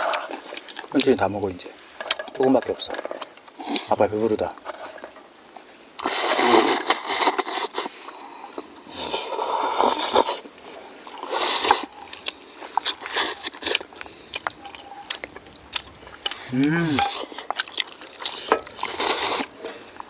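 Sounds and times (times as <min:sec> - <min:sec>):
noodles being slurped: 0:06.0 - 0:08.2, 0:09.0 - 0:10.5, 0:11.1 - 0:20.0.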